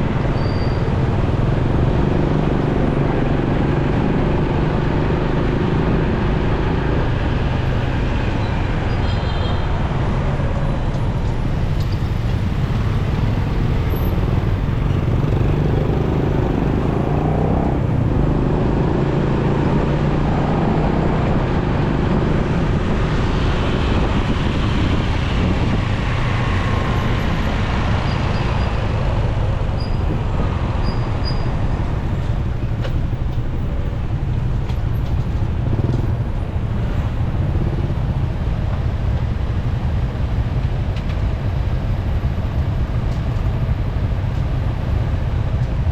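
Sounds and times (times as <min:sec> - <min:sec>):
motorcycle engine and road rumble: 0:00.0 - 0:45.9
surrounding traffic: 0:00.0 - 0:45.9.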